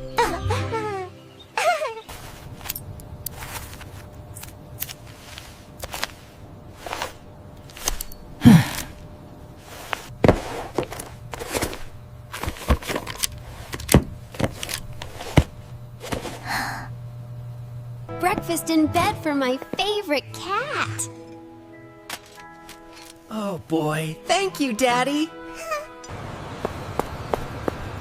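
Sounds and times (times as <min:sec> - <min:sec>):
faint low hum: 0:02.1 - 0:19.1.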